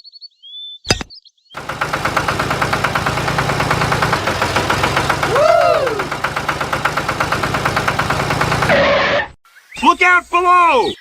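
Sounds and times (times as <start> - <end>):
engine chugging: 1.6 - 8.8.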